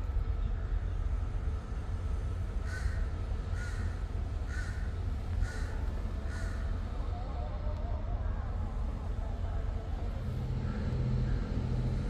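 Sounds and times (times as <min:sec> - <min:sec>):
low rumble: 0:08.0 - 0:12.0.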